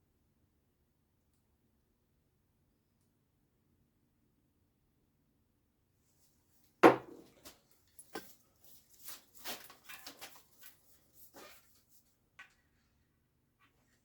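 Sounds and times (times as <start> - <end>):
sharp knock: 6.8 - 7.2
light clicks and scrapes: 7.4 - 12.9.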